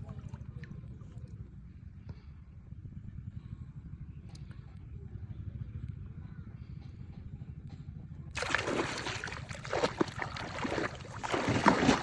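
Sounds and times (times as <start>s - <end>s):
steady low rumble: 0.0s - 12.0s
water splashing and sloshing: 8.4s - 12.0s.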